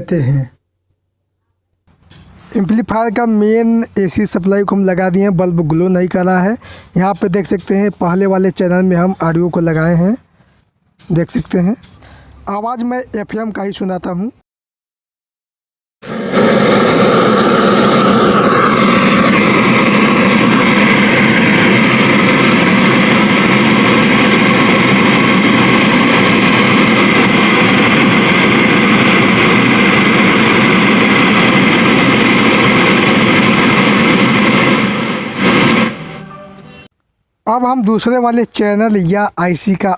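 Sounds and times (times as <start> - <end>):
radio static hiss: 17.5 - 36.9.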